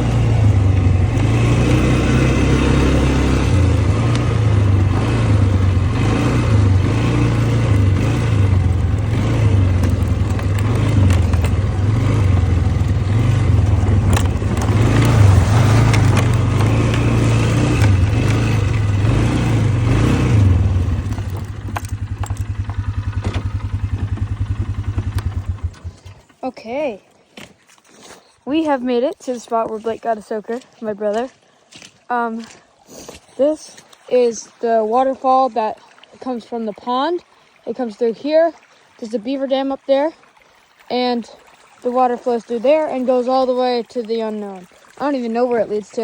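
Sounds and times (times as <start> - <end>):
atv engine revving and idling: 0.0 - 27.0.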